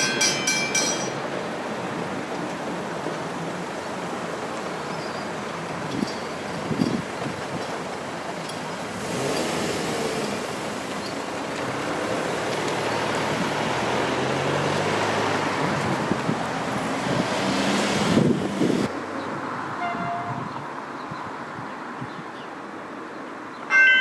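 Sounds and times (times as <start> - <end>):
motor vehicle passing by: 8.8 - 18.9.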